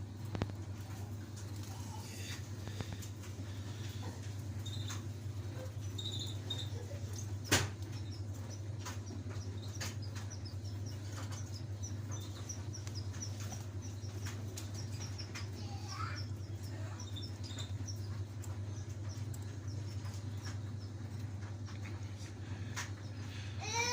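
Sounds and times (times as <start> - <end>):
canary chirping: 3.4 - 23.8.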